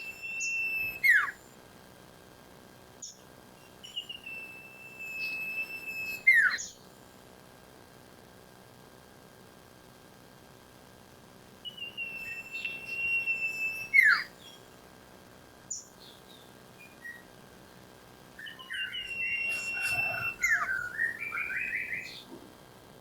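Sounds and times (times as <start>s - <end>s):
bird whistling song: 0.0s - 1.4s, 3.0s - 6.8s, 11.6s - 14.7s, 15.7s - 17.3s, 18.4s - 22.3s
short bird calls: 11.7s - 14.6s, 18.4s - 22.4s.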